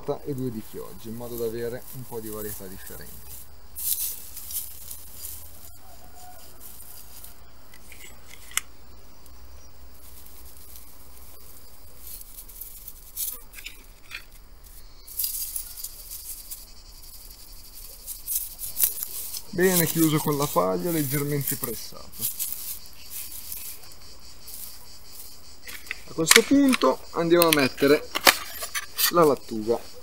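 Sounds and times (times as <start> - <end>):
straw rustling and crackling: 0.0 - 30.0
trowel scratching: 6.2 - 8.6, 12.1 - 14.4, 27.6 - 29.4.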